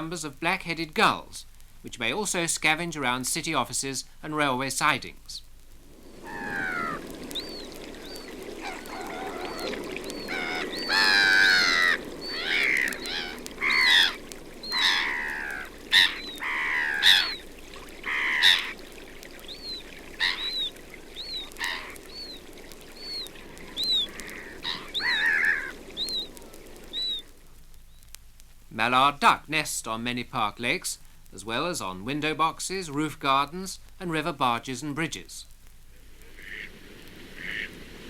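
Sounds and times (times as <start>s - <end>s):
gulls calling: 5.8s - 28.1s, 36.0s - 38.0s.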